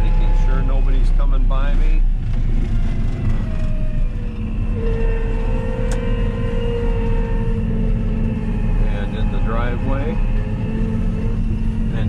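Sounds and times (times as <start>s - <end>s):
steady high tone: 0.0s - 1.5s, 4.0s - 12.0s
combine engine rumbling: 0.0s - 12.0s.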